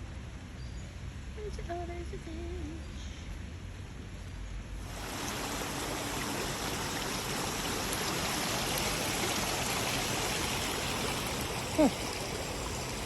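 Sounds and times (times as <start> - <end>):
river water rushing: 4.8 - 13.0.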